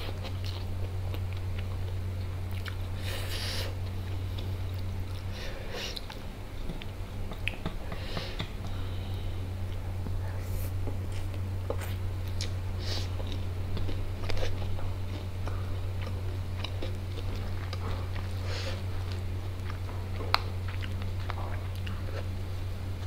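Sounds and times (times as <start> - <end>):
chewing and biting: 0.0 - 2.9, 11.1 - 22.4
steady low hum: 0.0 - 23.0.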